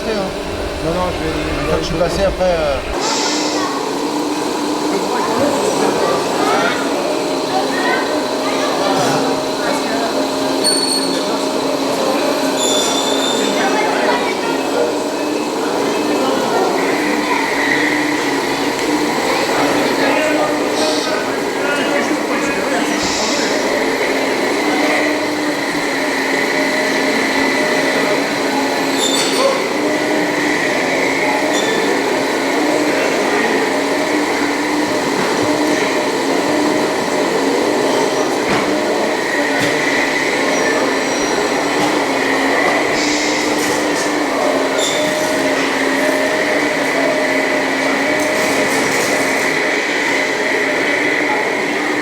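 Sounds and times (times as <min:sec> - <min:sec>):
electric motors whining: 0:00.0 - 0:03.0.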